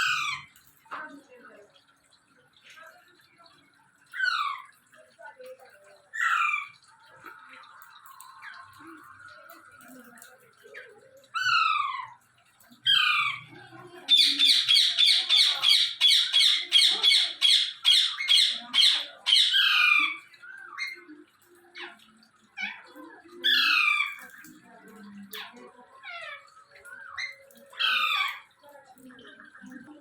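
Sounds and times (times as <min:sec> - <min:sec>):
parrot squawking: 0:00.0 - 0:00.5, 0:06.1 - 0:06.8, 0:12.9 - 0:13.5, 0:14.1 - 0:21.0, 0:26.0 - 0:28.6.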